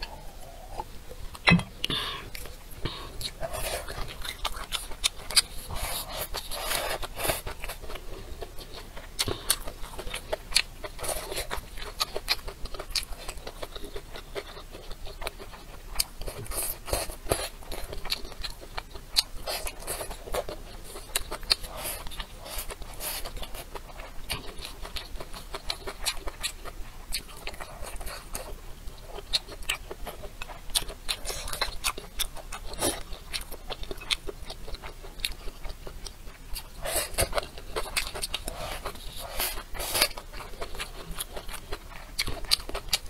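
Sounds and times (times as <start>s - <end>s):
wet chewing and lip-smacking: 0.7s - 43.0s.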